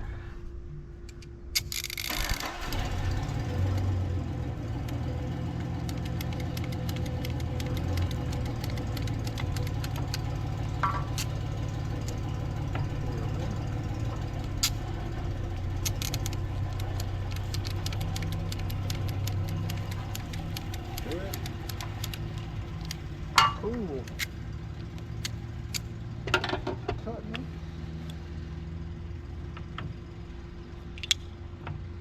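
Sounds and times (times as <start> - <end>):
engine humming: 0.0 - 32.0
light clicks and ticks: 4.8 - 11.4, 14.1 - 23.0.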